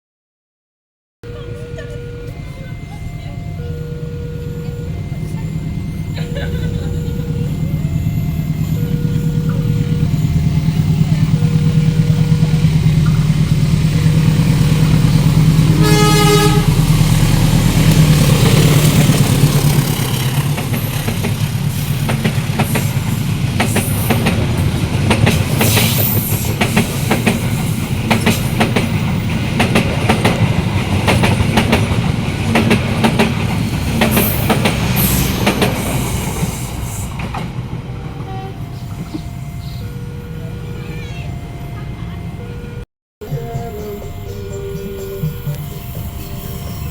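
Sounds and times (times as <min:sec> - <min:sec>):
diesel locomotive engine hum: 0:01.2 - 0:46.9
train wheels clacking over rail joints: 0:07.9 - 0:39.2
train horn blast: 0:11.3 - 0:20.0, 0:37.9 - 0:40.7.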